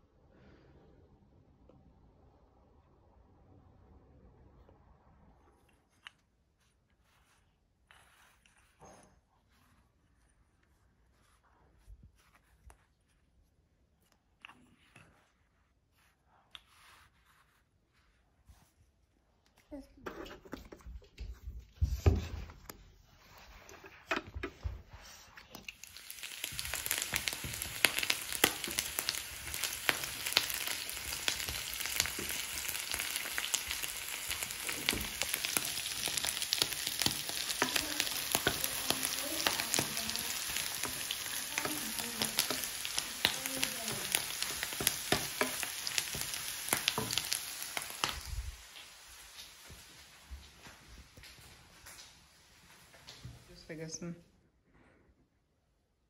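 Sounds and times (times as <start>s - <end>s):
food sizzling in a pan: 25.6s - 50.8s.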